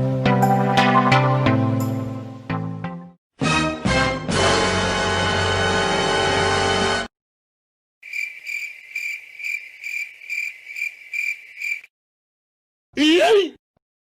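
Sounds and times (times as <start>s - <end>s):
loud music: 0.0s - 7.1s
crickets chirping: 8.0s - 11.9s.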